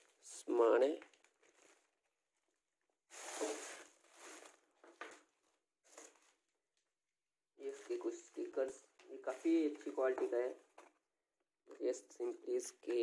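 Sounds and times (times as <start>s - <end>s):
plastic packaging crinkling: 0.9s - 2.0s, 3.1s - 5.2s.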